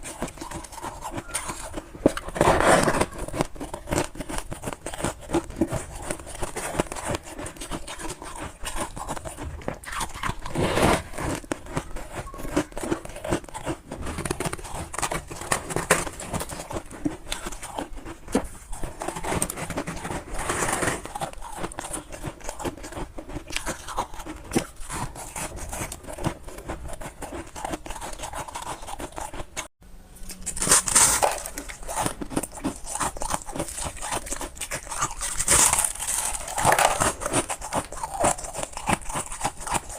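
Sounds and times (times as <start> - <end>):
frost being chewed: 0.0 - 39.9.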